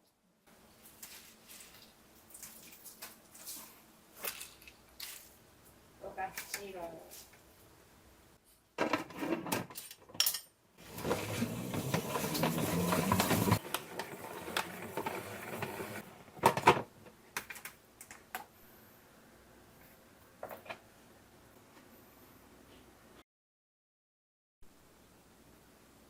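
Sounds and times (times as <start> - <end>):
rasping scraping: 10.8 - 16.0.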